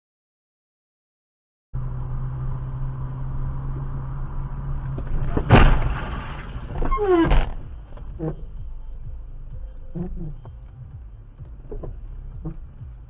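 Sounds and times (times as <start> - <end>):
car engine and road hum: 1.8 - 13.0
loud collision bang: 5.2 - 6.8
falling squeal: 5.5 - 7.6.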